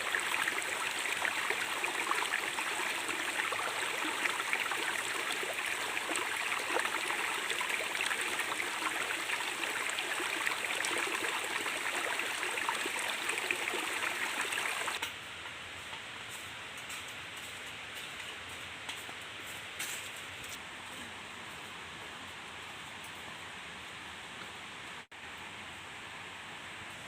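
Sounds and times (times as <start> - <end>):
stream rushing: 0.0 - 15.0.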